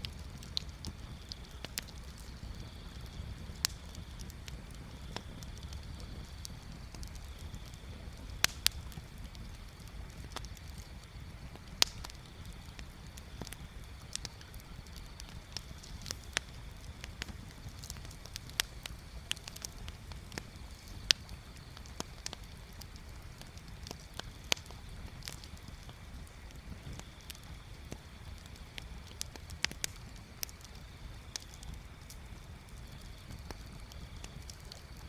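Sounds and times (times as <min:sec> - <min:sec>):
bonfire crackling pops: 0:00.0 - 0:35.0
low fire rumble: 0:00.0 - 0:35.0.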